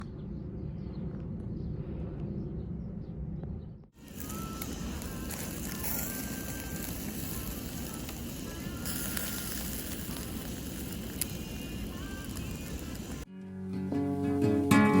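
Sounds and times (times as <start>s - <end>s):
meat sizzling over charcoal: 4.0s - 13.3s.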